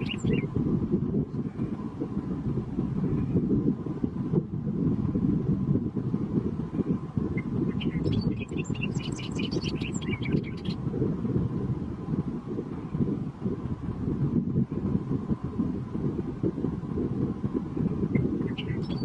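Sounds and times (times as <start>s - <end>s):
small bird chirping: 0.0s - 0.5s, 7.3s - 10.8s, 18.2s - 19.0s
low rumble: 0.0s - 19.0s
wind buffeting microphone: 0.0s - 19.0s.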